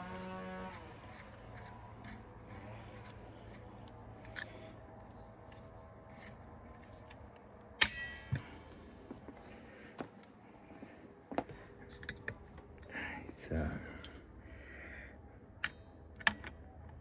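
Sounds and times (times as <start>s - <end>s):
steady hum: 0.0s - 15.6s
sharp metal clink with ring: 7.8s - 8.6s.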